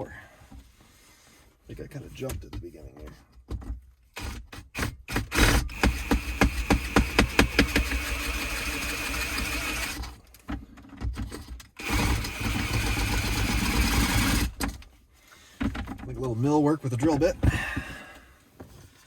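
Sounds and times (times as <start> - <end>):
drill bit knocking and chattering: 4.2 - 10.1, 11.8 - 14.8
electric drill running: 5.1 - 10.1, 11.8 - 14.6.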